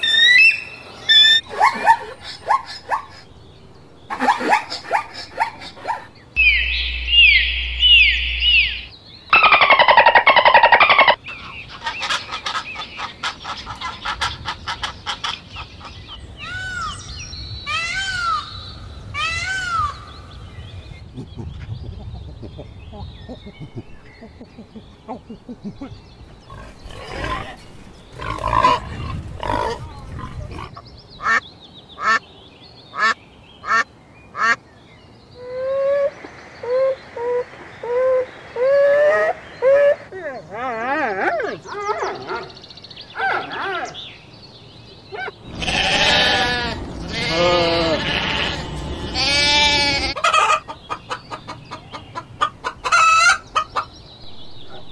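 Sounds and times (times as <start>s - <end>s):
repeated arching calls: 4.1s - 20.2s, 26.4s - 32.2s, 32.9s - 34.6s, 41.5s - 54.9s
falling bird chirps: 4.1s - 20.8s
dense pitched animal call: 4.2s - 11.2s.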